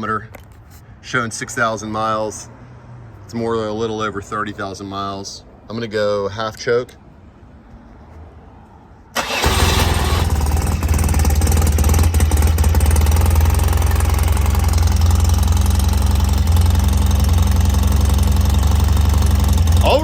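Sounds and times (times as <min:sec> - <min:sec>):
motorcycle engine starting and idling: 0:09.2 - 0:20.0.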